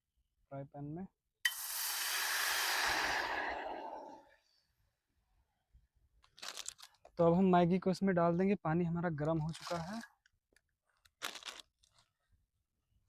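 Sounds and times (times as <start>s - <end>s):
water hissing in hot frying pan: 1.5s - 4.3s.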